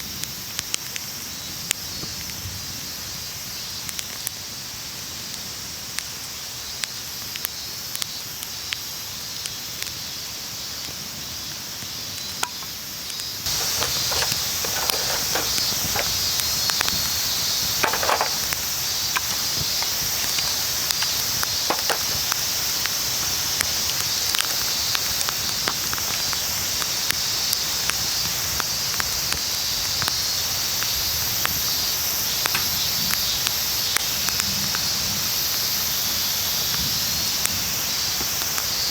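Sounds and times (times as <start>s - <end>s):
steady hiss: 0.0s - 38.9s
campfire crackling and popping: 10.8s - 34.8s.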